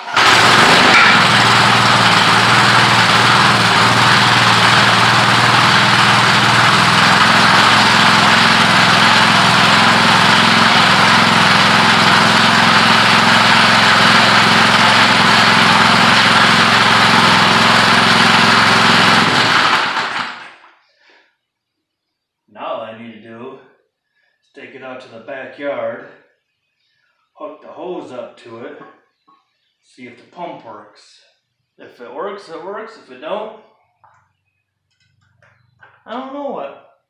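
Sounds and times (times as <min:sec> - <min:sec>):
small gasoline engine idling: 0:00.0 - 0:20.6.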